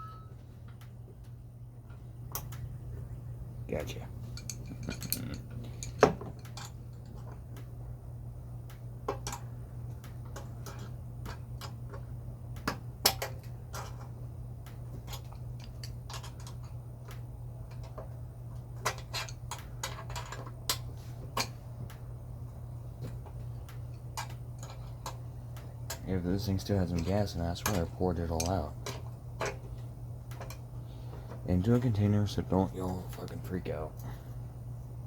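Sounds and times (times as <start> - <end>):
steady low hum: 0.0 - 35.0
metal tools clinking: 4.2 - 7.3.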